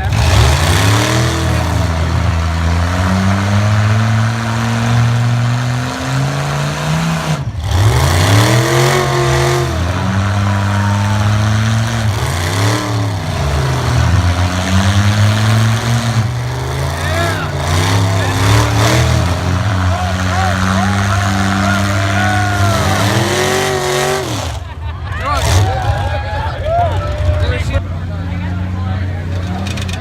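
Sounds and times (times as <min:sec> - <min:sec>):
truck engines revving: 0:00.0 - 0:30.0.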